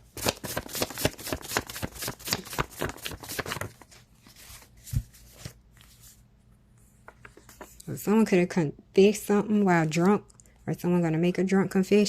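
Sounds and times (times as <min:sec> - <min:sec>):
cards being shuffled: 0:00.1 - 0:06.2.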